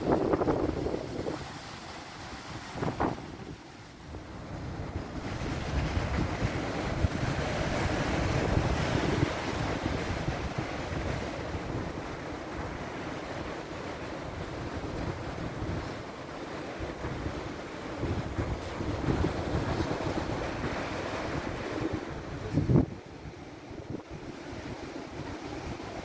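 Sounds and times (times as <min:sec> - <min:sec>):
sea waves washing in: 0:00.0 - 0:26.0
wind buffeting microphone: 0:00.0 - 0:26.0.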